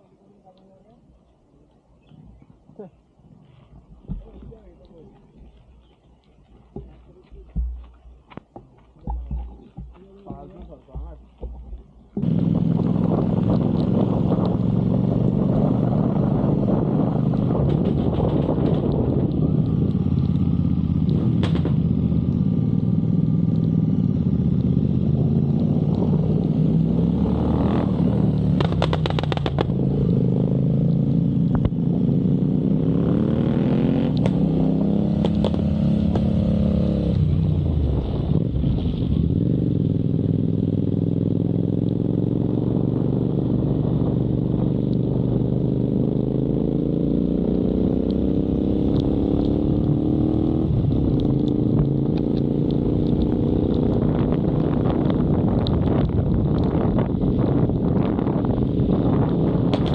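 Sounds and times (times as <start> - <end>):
road and wind noise: 0.0 - 59.9
motorcycle engine revving: 12.1 - 59.9.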